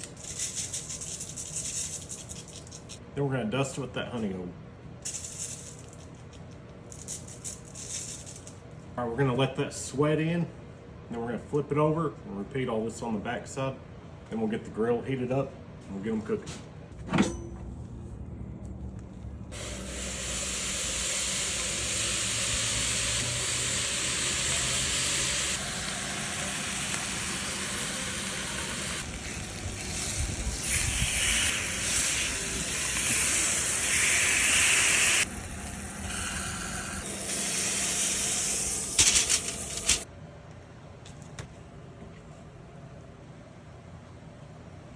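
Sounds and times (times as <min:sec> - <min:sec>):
meat sizzling on a grill: 0:19.6 - 0:40.0
sharp crackles: 0:25.5 - 0:36.9.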